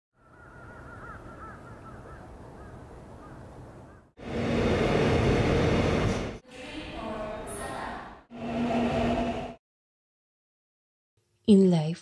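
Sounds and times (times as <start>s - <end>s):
birds chirping: 0.2s - 4.1s.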